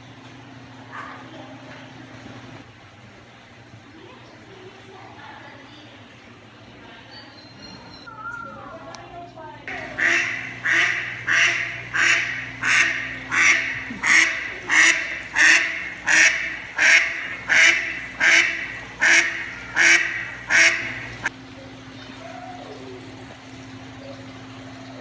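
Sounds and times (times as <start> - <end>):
steady low hum: 0.0 - 25.0
duck quacking: 9.7 - 21.3.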